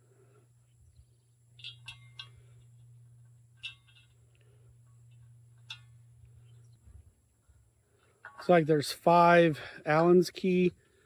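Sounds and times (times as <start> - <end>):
low steady hum: 0.0 - 11.0
sharp metal clicks with ring: 1.5 - 4.4.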